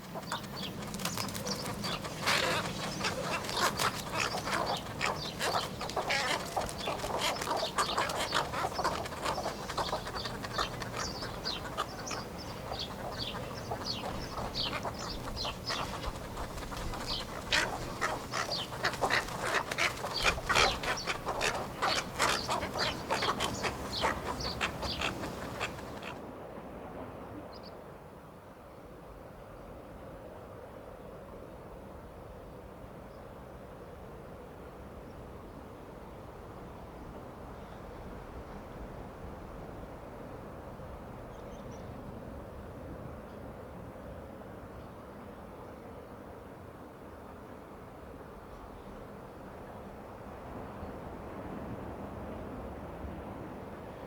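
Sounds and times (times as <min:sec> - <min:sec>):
bird chattering calls: 0:00.0 - 0:26.2.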